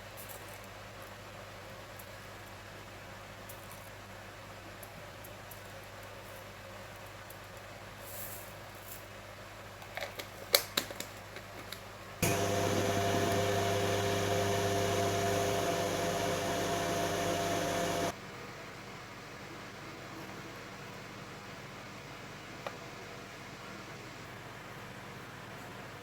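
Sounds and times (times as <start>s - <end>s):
microwave oven humming: 12.2s - 18.2s.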